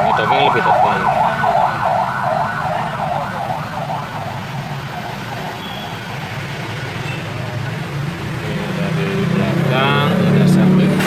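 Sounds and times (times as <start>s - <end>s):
emergency siren yelping: 0.0s - 6.9s.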